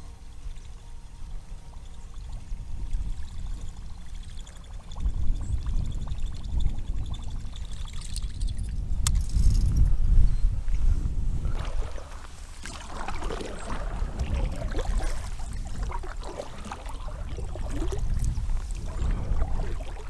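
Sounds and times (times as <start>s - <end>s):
wind rumbling on microphone: 0.0s - 20.0s
water splashing and trickling: 1.5s - 8.8s, 11.4s - 20.0s
sharp click: 8.0s - 9.8s.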